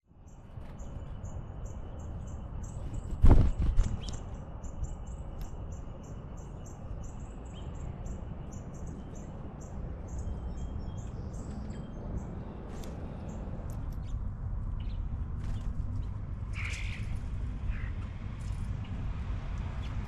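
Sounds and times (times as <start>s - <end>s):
low outdoor rumble: 0.2s - 20.0s.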